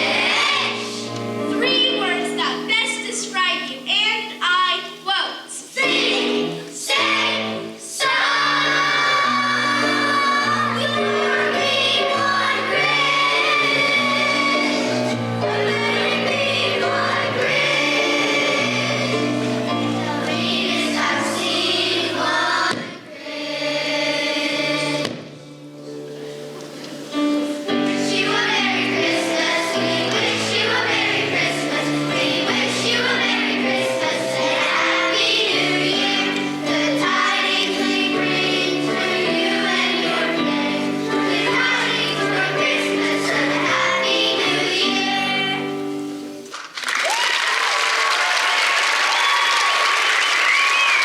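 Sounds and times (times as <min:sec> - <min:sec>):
choir singing held chords: 0:00.0 - 0:01.5, 0:05.5 - 0:46.4
audience applause: 0:46.5 - 0:51.0.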